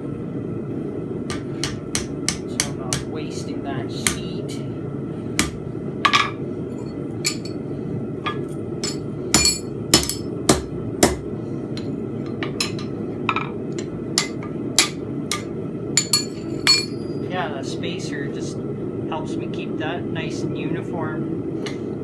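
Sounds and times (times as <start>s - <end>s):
hammer striking steel on anvil: 1.3s - 3.1s, 4.0s - 4.3s, 5.4s - 6.4s, 8.3s - 17.2s.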